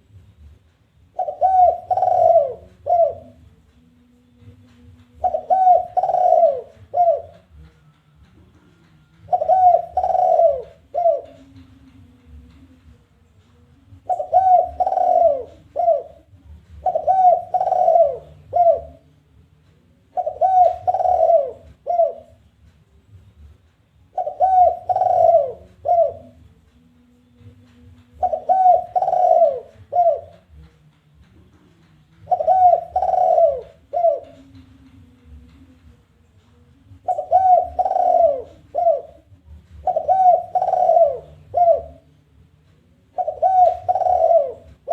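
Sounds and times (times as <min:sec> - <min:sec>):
dove cooing: 0:01.1 - 0:03.5, 0:04.4 - 0:07.7, 0:08.4 - 0:12.4, 0:13.9 - 0:19.1, 0:20.1 - 0:22.4, 0:24.1 - 0:26.5, 0:27.4 - 0:30.7, 0:32.2 - 0:35.7, 0:36.9 - 0:42.2, 0:43.0 - 0:44.9.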